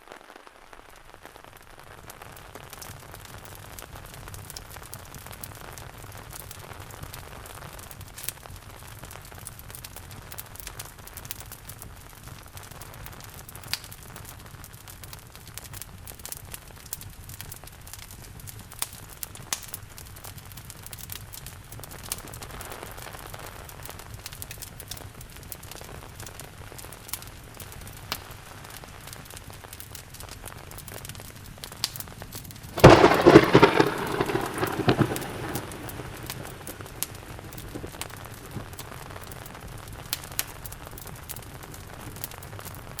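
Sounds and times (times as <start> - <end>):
steady rain: 0.0 - 43.0
fireplace crackling and popping: 0.1 - 43.0
thunderclap rumbling: 32.8 - 38.2.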